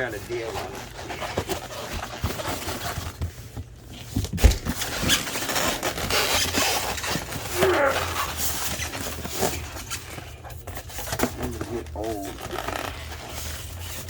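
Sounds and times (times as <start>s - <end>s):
cardboard box rustling: 0.0s - 14.0s.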